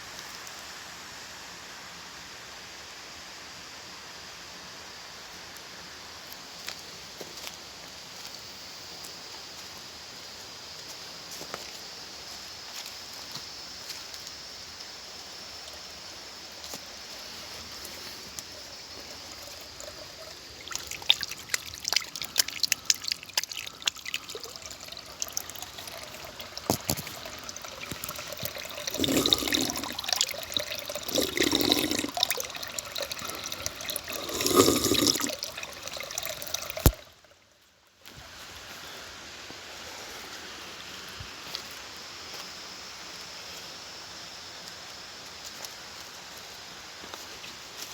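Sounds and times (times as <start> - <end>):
water trickling and pouring: 16.6 - 37.4.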